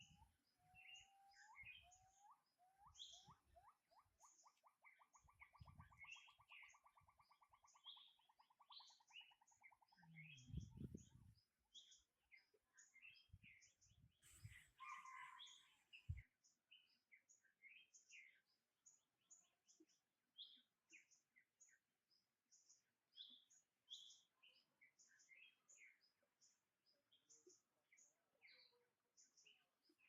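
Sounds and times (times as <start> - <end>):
birds chirping high: 0.0 - 19.6.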